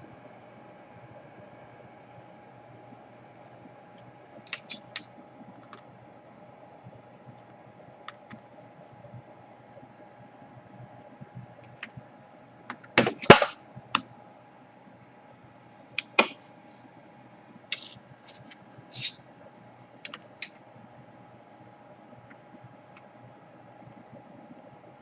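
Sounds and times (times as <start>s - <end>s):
plastic and metal parts clattering: 17.8s - 19.2s.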